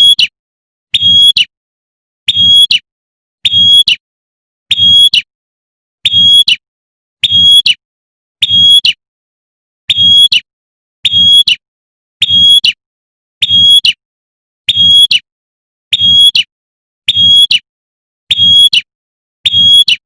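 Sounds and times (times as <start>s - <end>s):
bird high whistled call: 0.0s - 1.5s, 2.3s - 4.0s, 4.7s - 5.3s, 6.0s - 6.6s, 7.2s - 7.8s, 8.4s - 9.0s, 9.9s - 11.6s, 13.4s - 14.0s, 14.7s - 15.3s, 15.9s - 16.5s, 17.1s - 17.7s, 18.3s - 20.0s.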